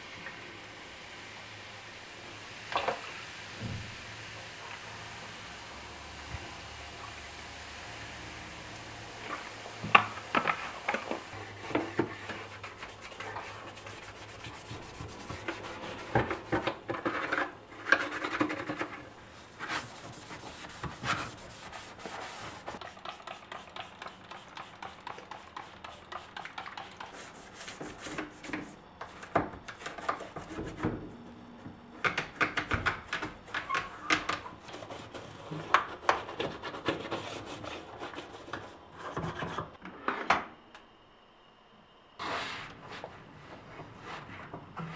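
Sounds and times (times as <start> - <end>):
hands scrubbing surfaces: 11.3 - 30.8.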